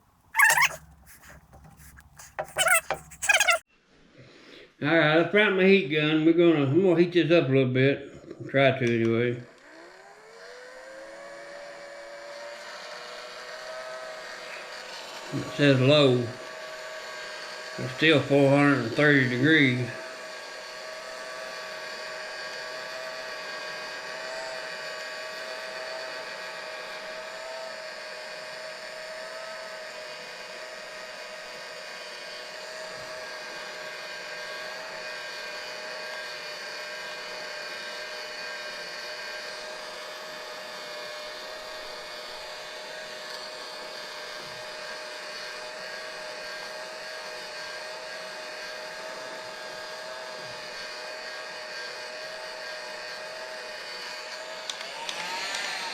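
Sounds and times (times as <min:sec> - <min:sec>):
heat gun blower whirring: 0:32.3 - 0:55.9.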